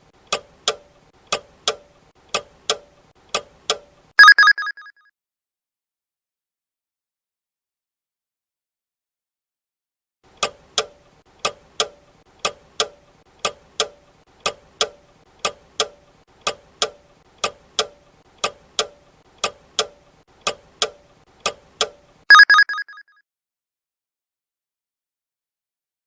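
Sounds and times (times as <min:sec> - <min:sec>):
clock ticking: 0:00.3 - 0:04.6, 0:10.4 - 0:22.9
alarm bell ringing: 0:04.2 - 0:04.9, 0:22.3 - 0:23.0.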